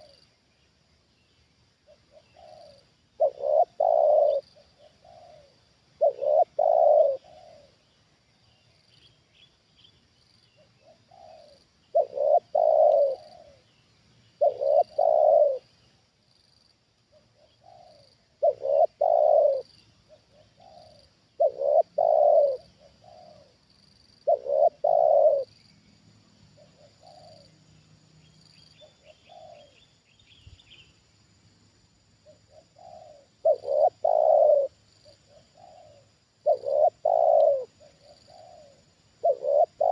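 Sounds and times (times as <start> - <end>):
doves cooing: 1.9 - 7.8, 10.8 - 13.7, 14.4 - 15.7, 17.1 - 23.6, 24.2 - 25.5, 26.6 - 27.5, 28.8 - 29.8, 32.2 - 39.9.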